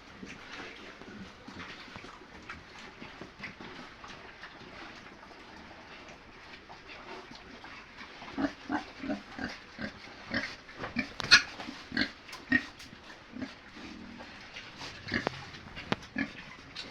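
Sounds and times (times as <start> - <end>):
pigs grunting: 7.0 - 16.9.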